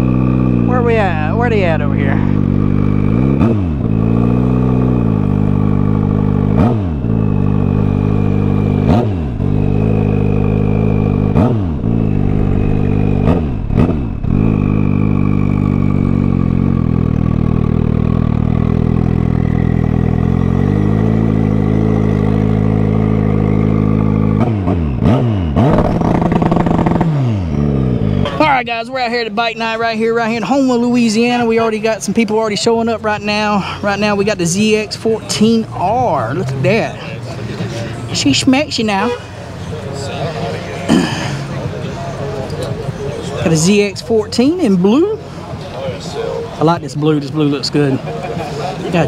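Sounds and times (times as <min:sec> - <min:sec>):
motorcycle engine revs dipping: 0:00.0 - 0:28.5.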